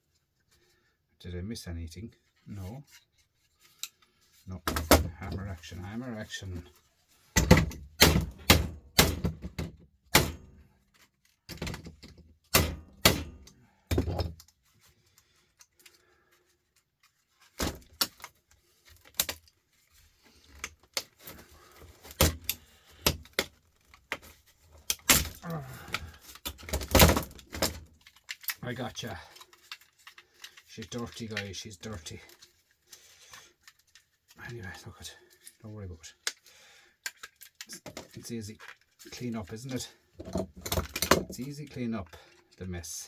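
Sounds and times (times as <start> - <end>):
loose parts rattling: 17.0 - 34.1, 37.0 - 41.8.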